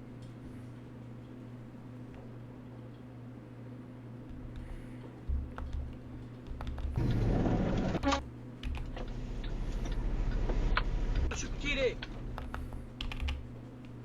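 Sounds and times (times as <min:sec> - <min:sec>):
low steady hum: 0:00.0 - 0:14.0
computer keyboard key clicks: 0:05.5 - 0:07.0, 0:12.3 - 0:14.0.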